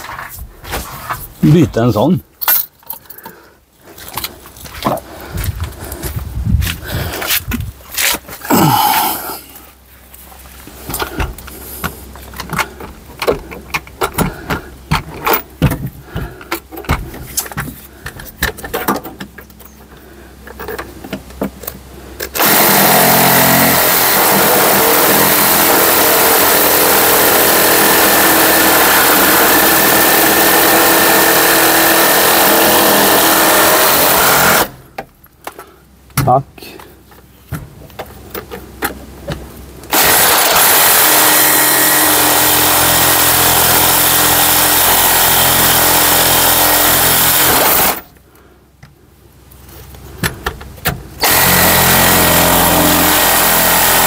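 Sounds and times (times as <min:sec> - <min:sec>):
reciprocating saw cutting: 0:22.4 - 0:34.8, 0:39.9 - 0:48.0, 0:51.2 - 0:54.0.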